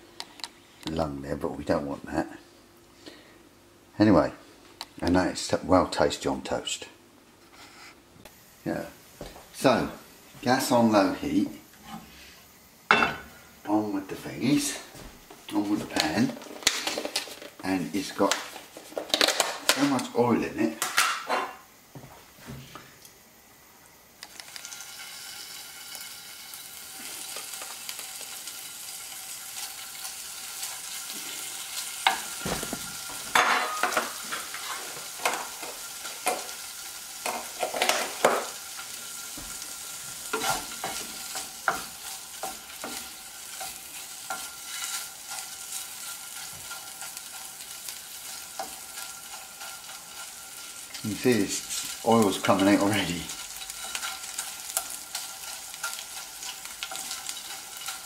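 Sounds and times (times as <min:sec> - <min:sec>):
livers sizzling in oil: 0:23.1 - 0:58.0
oil popping and crackling: 0:24.2 - 0:33.4
wooden spatula stirring: 0:40.3 - 0:58.0.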